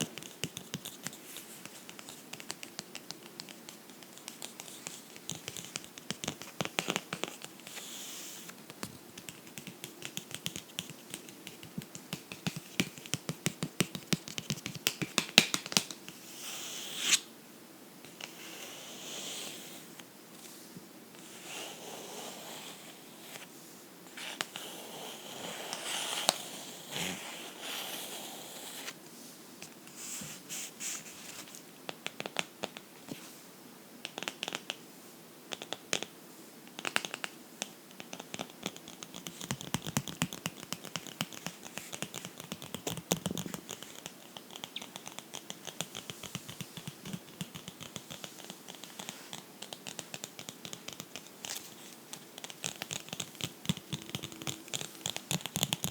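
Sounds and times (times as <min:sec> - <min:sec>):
soft rubbing on a book: 0:18.1 - 0:31.6, 0:38.1 - 0:55.9.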